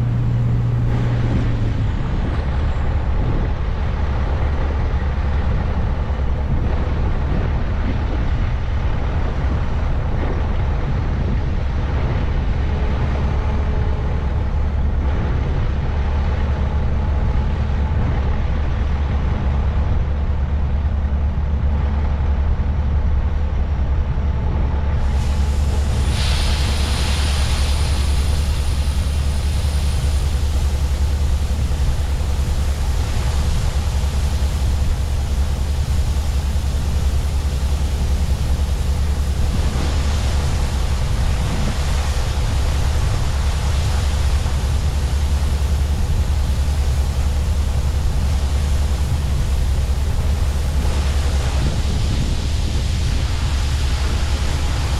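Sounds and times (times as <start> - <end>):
diesel farm machinery droning: 0.0 - 54.9
loud rushing hiss: 25.0 - 54.9.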